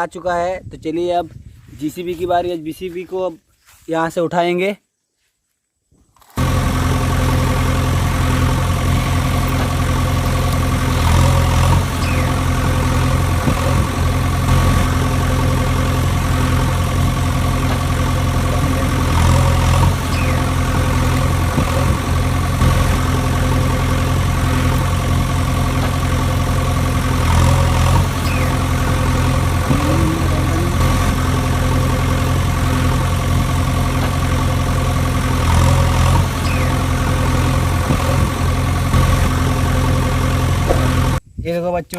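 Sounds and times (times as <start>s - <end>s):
engine drone idling: 6.3s - 41.2s.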